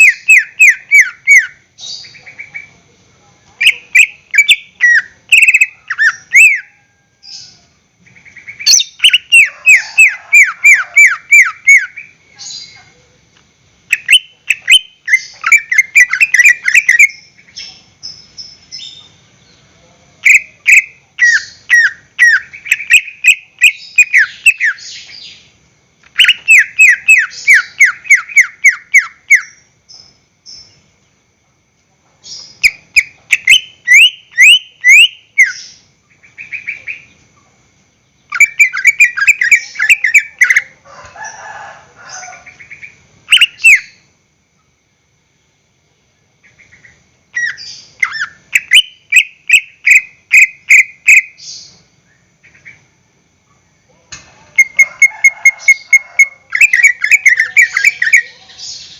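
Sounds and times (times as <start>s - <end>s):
bird singing rapid falling chirps: 0.0s - 2.8s, 3.6s - 12.8s, 13.9s - 31.1s, 32.3s - 37.3s.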